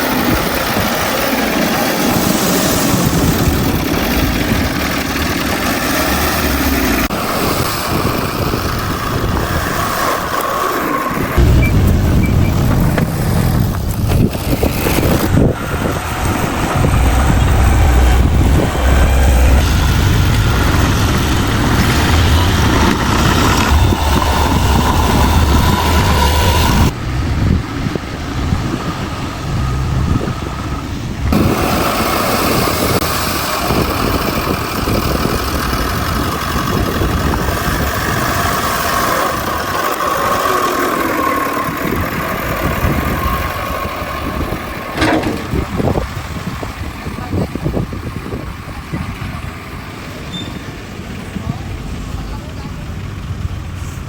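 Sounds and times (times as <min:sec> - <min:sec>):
bulldozer diesel engine rumble: 0:00.0 - 0:54.0.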